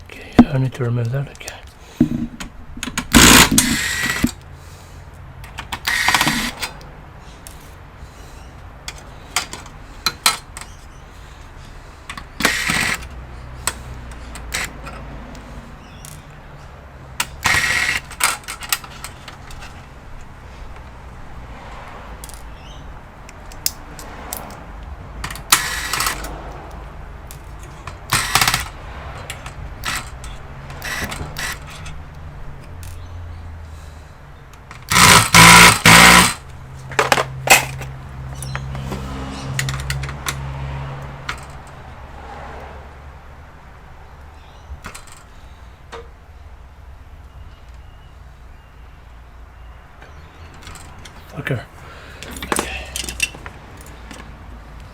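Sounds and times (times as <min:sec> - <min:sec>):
clicking and scraping tool noise: 0:01.4 - 0:04.5, 0:05.4 - 0:07.8, 0:11.6 - 0:16.4, 0:17.2 - 0:20.9, 0:23.2 - 0:33.1, 0:34.5 - 0:40.4, 0:52.2 - 0:54.9.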